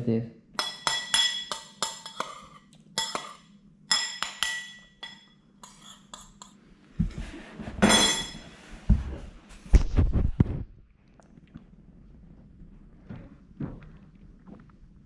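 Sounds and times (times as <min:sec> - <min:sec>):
cutlery clinking on ceramic dish: 0:00.6 - 0:06.6, 0:07.8 - 0:08.5.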